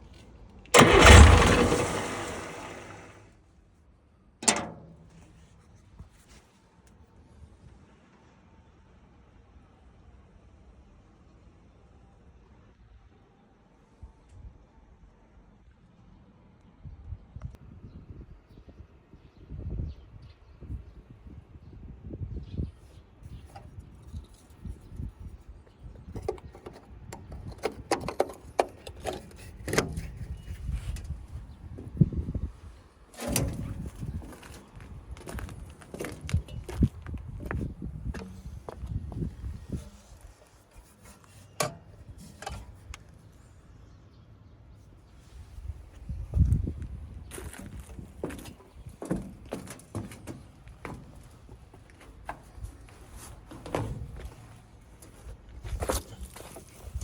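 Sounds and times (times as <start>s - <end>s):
low rumble: 0.8s - 3.2s
irregular knocks and clatters: 48.2s - 55.2s.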